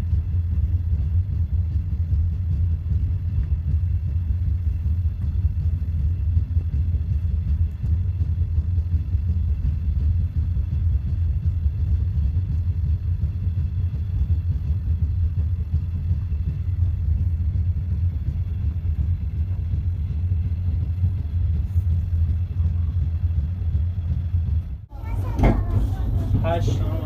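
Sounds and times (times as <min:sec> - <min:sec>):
train rumbling: 0:00.0 - 0:27.0.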